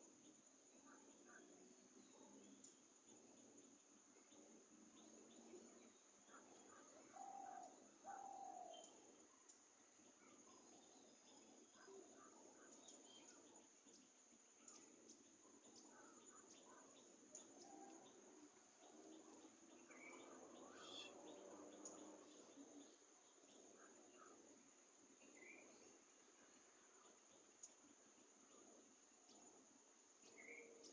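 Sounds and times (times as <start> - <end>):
faint birdsong: 0.0 - 30.9.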